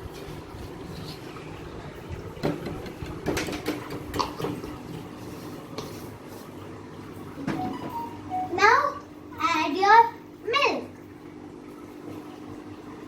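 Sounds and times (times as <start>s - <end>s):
low steady hum: 6.8s - 13.0s.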